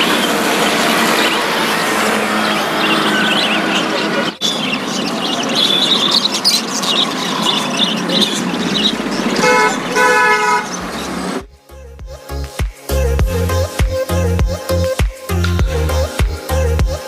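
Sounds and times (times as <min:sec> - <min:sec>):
busy road traffic: 0:00.0 - 0:11.5
vehicle horn honking: 0:09.4 - 0:11.2.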